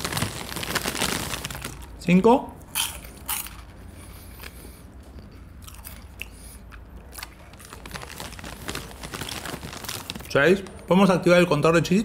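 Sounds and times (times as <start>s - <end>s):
person chewing crunchy snack: 2.7s - 10.3s.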